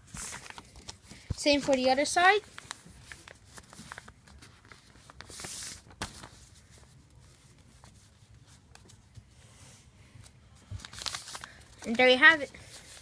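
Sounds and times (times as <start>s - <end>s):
paper crackle: 0.0s - 9.2s, 10.6s - 13.0s
faint paper clicks: 0.2s - 1.9s, 2.5s - 6.3s.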